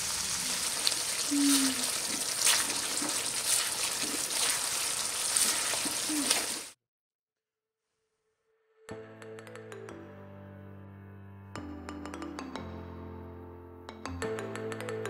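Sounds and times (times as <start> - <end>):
food sizzling in hot oil: 0.0 - 6.8.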